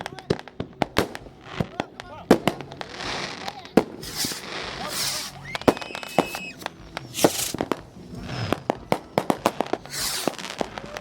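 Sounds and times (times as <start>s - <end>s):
fireworks bangs and cracks: 0.0s - 11.0s
fireworks hissing burst: 0.0s - 11.0s
high whistle: 4.0s - 7.6s.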